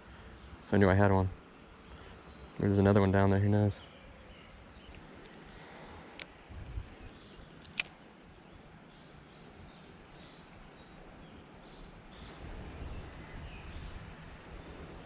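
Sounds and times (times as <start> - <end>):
sharp clicks: 4.9 - 6.5, 7.5 - 8.1.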